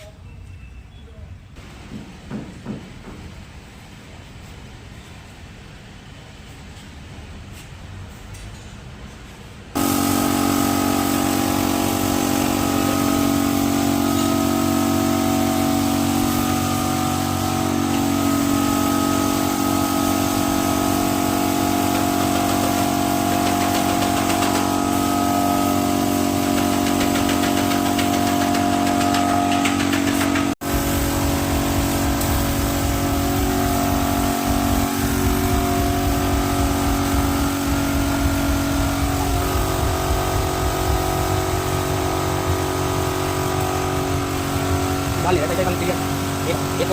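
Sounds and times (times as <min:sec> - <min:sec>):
machine motor humming: 0:09.8 - 0:46.9.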